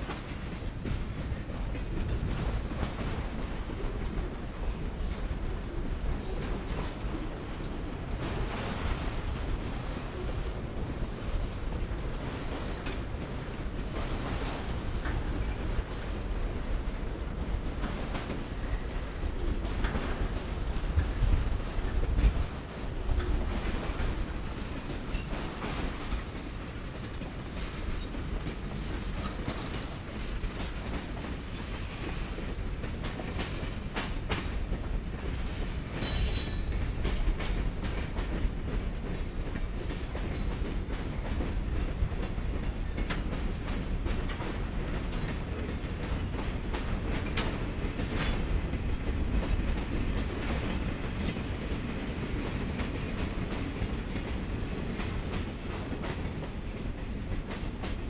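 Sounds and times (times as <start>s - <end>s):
wheels clacking over rail joints: 23.1s - 58.0s
high-pitched metal squeals: 36.0s - 36.7s.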